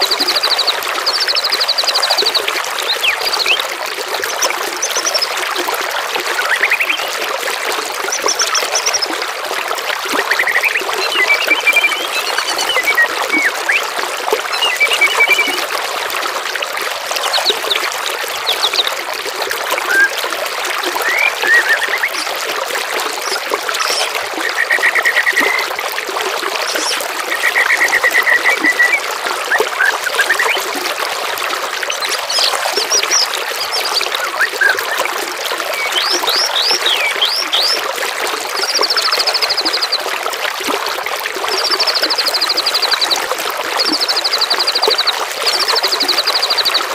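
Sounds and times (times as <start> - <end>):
trickling running water: 0.0 - 46.9
songbirds trilling and chirping: 6.4 - 7.1, 10.2 - 13.8, 21.0 - 22.4, 23.1 - 25.7, 26.4 - 30.8, 31.8 - 35.0, 35.8 - 37.8.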